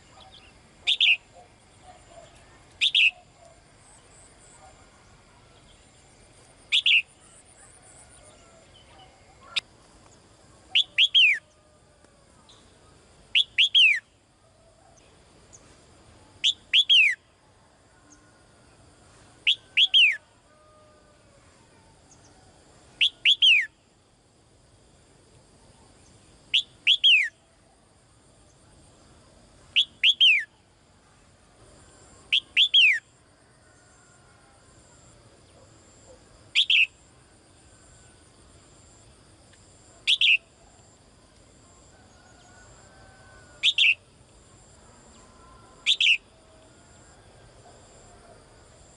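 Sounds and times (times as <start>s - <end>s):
songbird whistled call: 0.1s - 1.4s, 2.1s - 3.6s, 6.7s - 7.7s, 10.7s - 11.6s, 13.3s - 14.1s, 16.4s - 17.2s, 19.5s - 20.2s, 23.0s - 23.8s, 26.5s - 27.4s, 29.8s - 30.5s, 32.3s - 33.0s, 36.6s - 37.0s, 40.1s - 40.5s, 43.6s - 44.0s, 45.9s - 46.2s.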